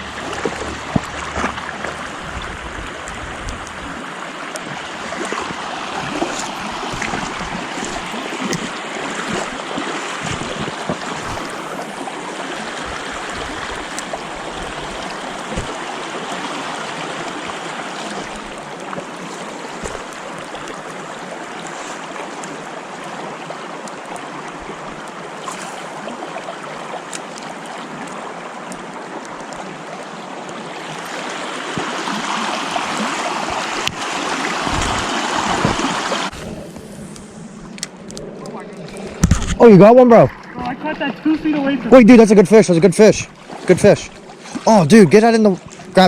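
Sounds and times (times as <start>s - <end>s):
stream water flowing: 0.0s - 46.0s.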